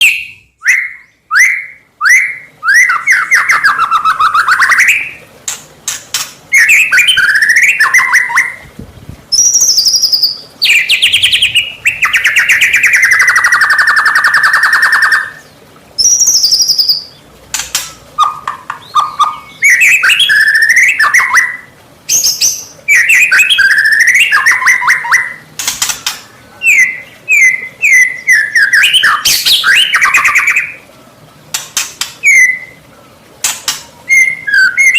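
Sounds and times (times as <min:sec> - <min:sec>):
songbird whistling and trilling: 0:00.0 - 0:05.2, 0:06.5 - 0:08.6, 0:09.3 - 0:17.2, 0:17.8 - 0:25.4, 0:26.2 - 0:30.8, 0:31.8 - 0:32.8, 0:33.7 - 0:34.9
bird churring rattle: 0:31.5 - 0:32.6.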